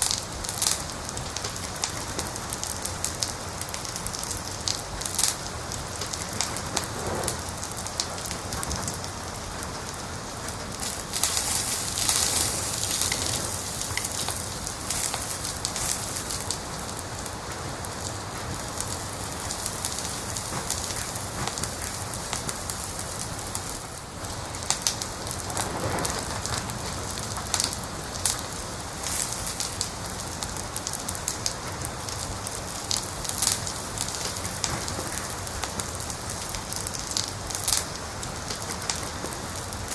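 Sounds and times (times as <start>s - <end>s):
steady hiss: 0.0s - 39.9s
wood fire crackling and popping: 0.0s - 39.9s.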